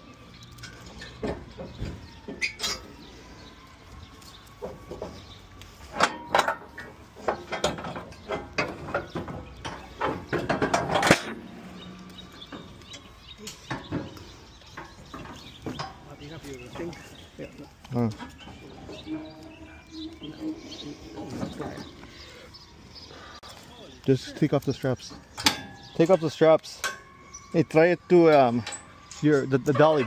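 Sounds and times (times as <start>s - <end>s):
irregular knocks and clatters: 6.0s - 22.2s.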